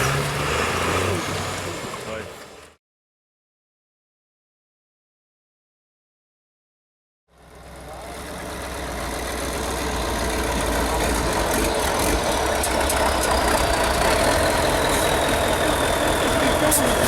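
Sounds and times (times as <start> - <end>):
diesel truck engine running: 7.3 - 17.0
high engine whine: 7.4 - 17.0.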